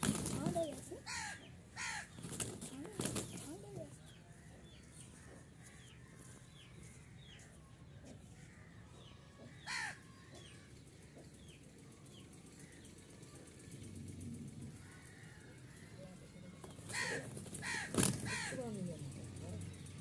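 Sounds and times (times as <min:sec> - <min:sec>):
wing flaps: 0:00.0 - 0:00.9, 0:16.8 - 0:18.5.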